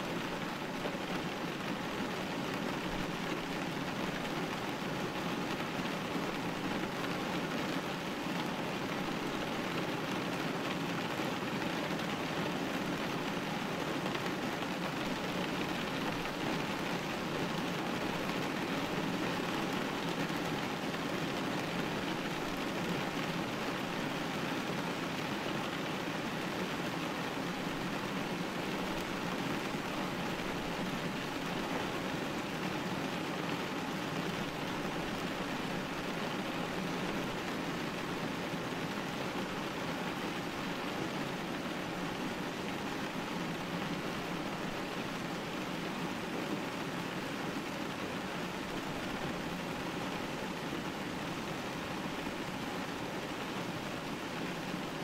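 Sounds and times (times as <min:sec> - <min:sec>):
rain hitting a glass window: 0:00.0 - 0:55.0.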